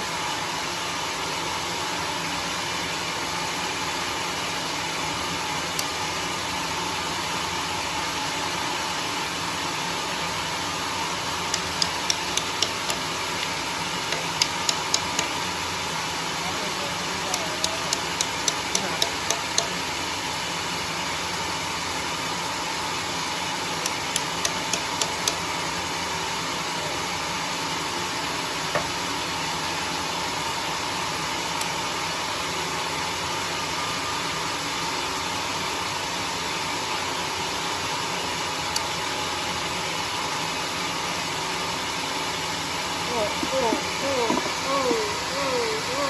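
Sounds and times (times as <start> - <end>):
sawmill machinery droning: 10.7 - 20.3, 42.9 - 46.0
sharp ticks: 11.5 - 13.5, 14.1 - 15.3, 17.4 - 19.8, 23.9 - 25.4.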